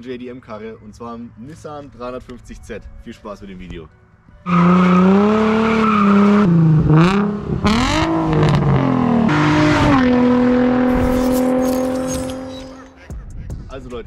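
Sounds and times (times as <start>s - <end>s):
car engine revving: 4.5s - 12.8s.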